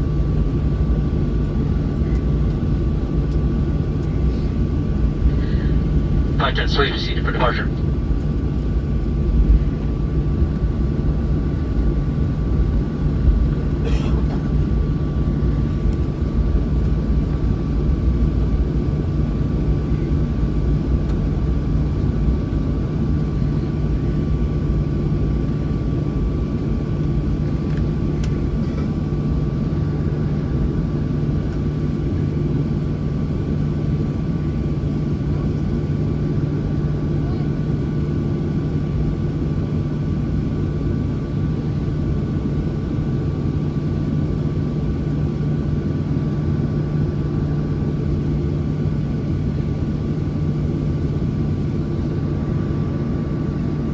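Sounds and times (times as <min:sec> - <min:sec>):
aircraft cabin engine rumble: 0:00.0 - 0:53.9
thin steady whine: 0:05.4 - 0:07.8.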